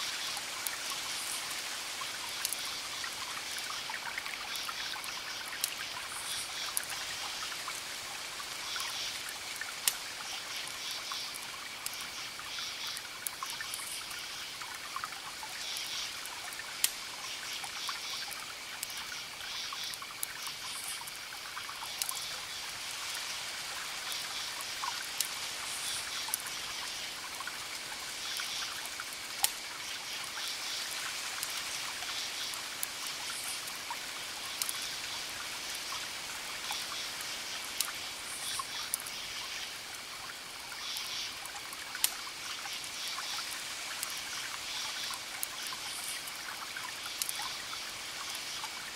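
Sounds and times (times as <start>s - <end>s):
wood fire crackling: 0.3s - 3.7s, 8.8s - 14.8s, 16.8s - 17.1s, 26.3s - 35.0s, 47.0s - 47.4s.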